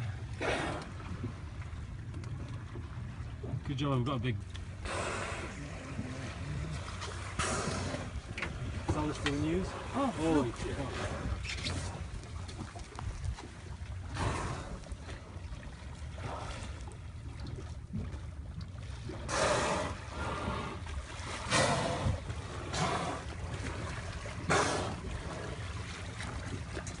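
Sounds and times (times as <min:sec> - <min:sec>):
water sloshing around a boat: 0:00.0 - 0:27.0.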